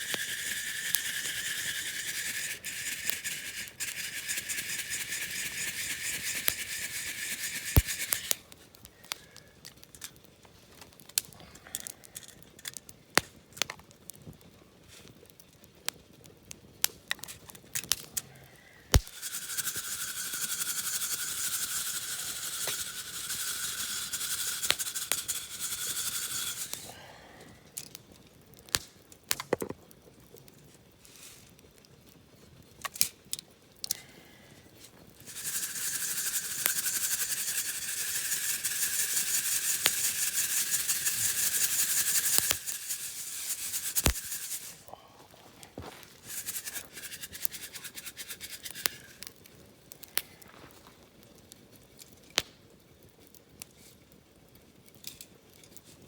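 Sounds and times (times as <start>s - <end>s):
coffee beans rattling in mesh: 0.0s - 8.4s, 18.9s - 27.1s, 35.2s - 44.9s, 45.8s - 49.3s
crackles and pops: 7.8s - 19.3s, 27.7s - 34.2s, 49.0s - 53.9s.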